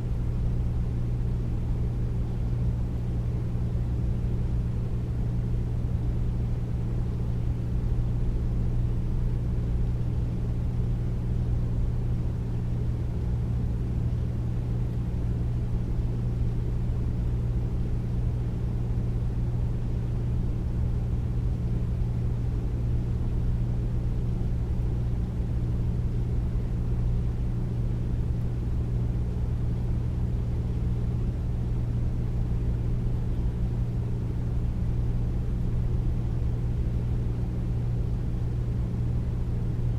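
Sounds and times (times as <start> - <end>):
air conditioner humming: 0.0 - 39.9.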